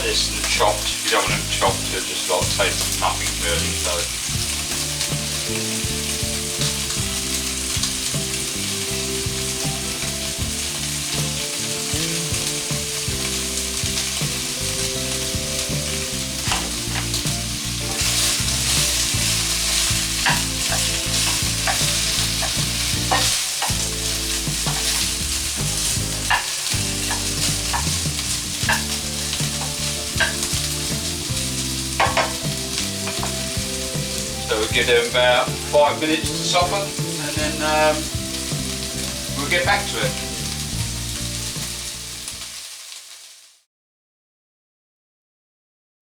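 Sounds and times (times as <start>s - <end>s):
meat sizzling in a frying pan: 0.0s - 43.7s
utensil clicking against pan: 15.7s - 34.2s.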